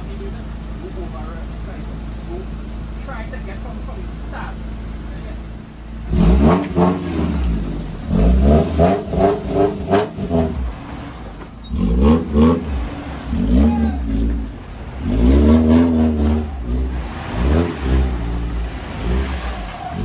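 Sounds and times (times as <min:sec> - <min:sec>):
engine revving hard: 0:06.0 - 0:20.0.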